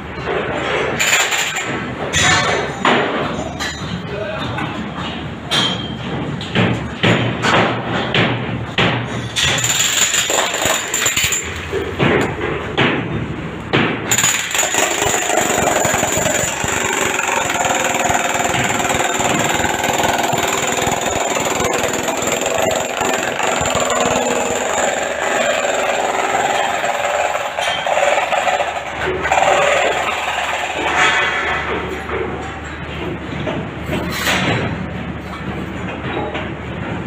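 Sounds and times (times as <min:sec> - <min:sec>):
hammer strikes: 0:00.3 - 0:34.8
power tool running: 0:14.1 - 0:30.9.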